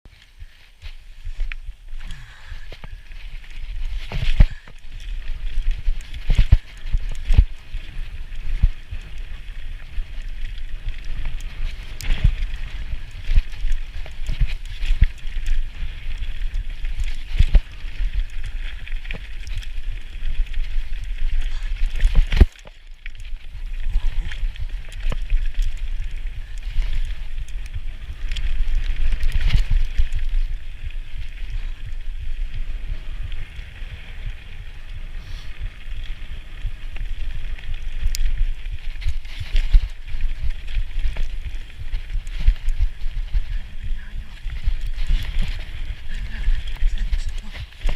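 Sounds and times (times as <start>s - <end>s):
bike rattling over bumps: 0.1s - 47.9s
tyre rumble: 0.2s - 22.6s
wind on microphone: 0.2s - 47.9s.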